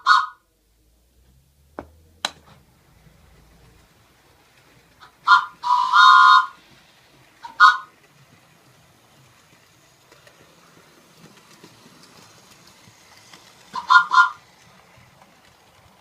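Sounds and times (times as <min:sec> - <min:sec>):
train whistle blasts: 0:05.3 - 0:06.6.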